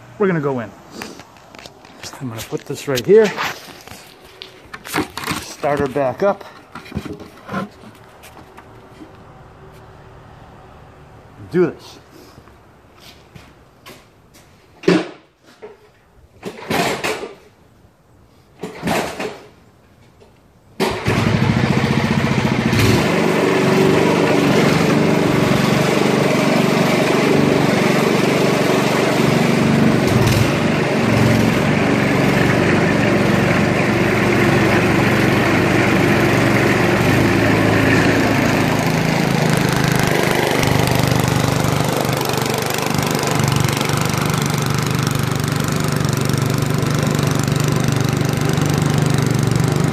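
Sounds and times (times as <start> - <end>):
snowblower engine cranking and running: 1.0 - 9.2, 20.8 - 49.9.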